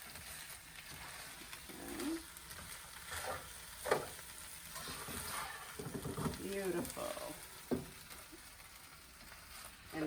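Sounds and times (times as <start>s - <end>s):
fried rice sizzling in pan: 0.0s - 10.0s
utensil scraping and knocking pan: 3.1s - 6.6s.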